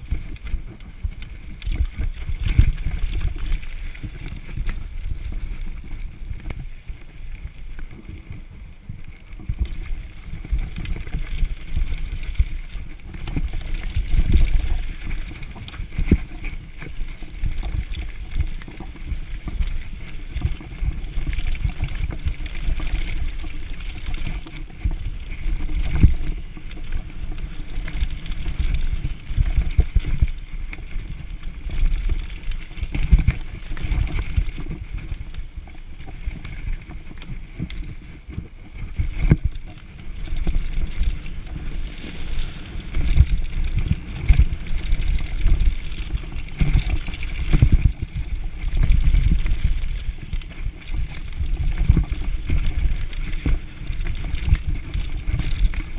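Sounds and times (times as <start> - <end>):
mountain bike rattling on rough trail: 0.0 - 55.9.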